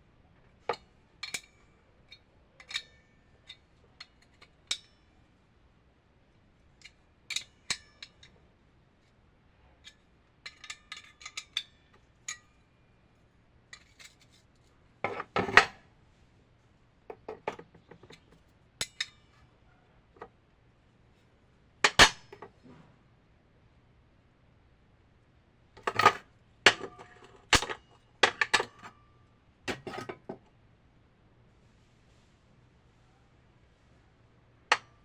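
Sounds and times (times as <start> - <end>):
metal tools clicking and clinking: 1.2 - 5.1, 25.8 - 28.9, 29.7 - 30.4.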